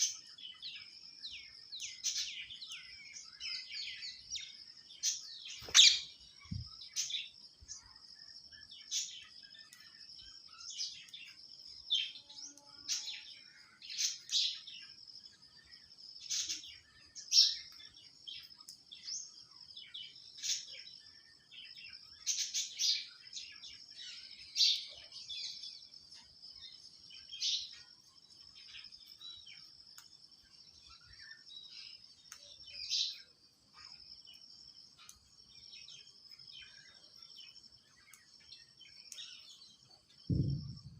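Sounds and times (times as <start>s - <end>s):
high-pitched bird chirps: 5.6s - 7.1s.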